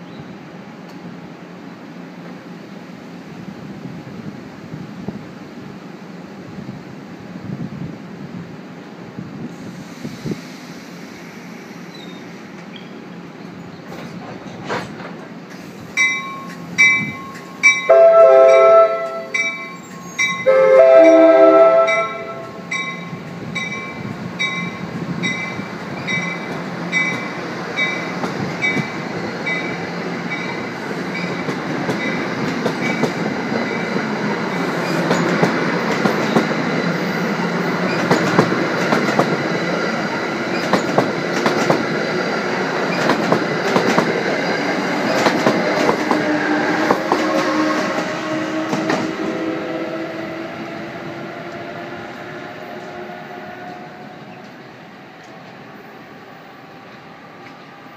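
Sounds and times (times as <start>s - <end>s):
train rumble and wheel clicks: 0.0s - 57.9s
train horn blasts: 17.8s - 23.0s, 45.9s - 54.3s.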